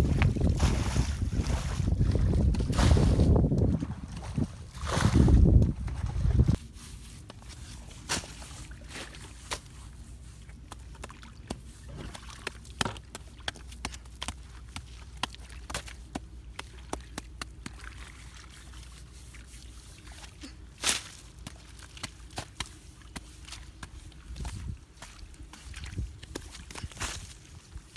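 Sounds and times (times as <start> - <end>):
wet mud slapping: 10.5 - 27.9.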